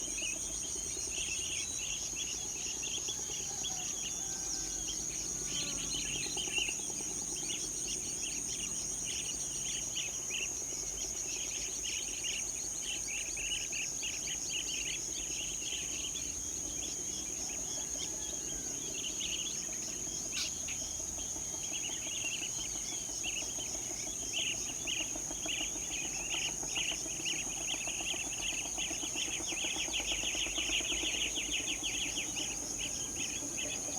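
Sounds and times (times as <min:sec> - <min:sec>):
high-pitched insect drone: 0:03.5 - 0:10.4.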